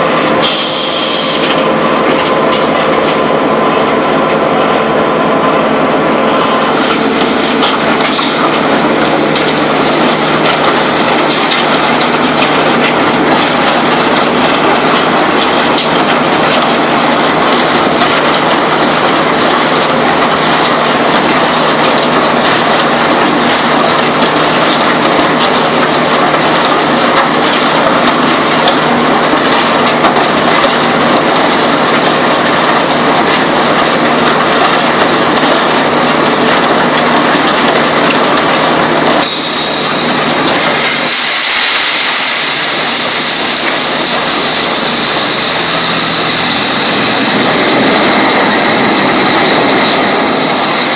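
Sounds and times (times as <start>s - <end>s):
concrete mixer rattling: 1.4s - 39.2s, 42.5s - 50.9s.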